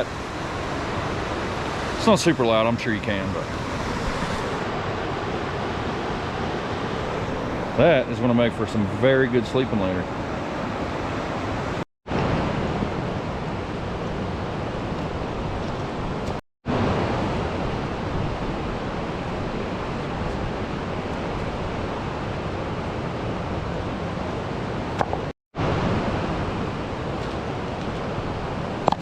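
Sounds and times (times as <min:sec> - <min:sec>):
river water rushing over rocks: 0:06.8 - 0:12.6.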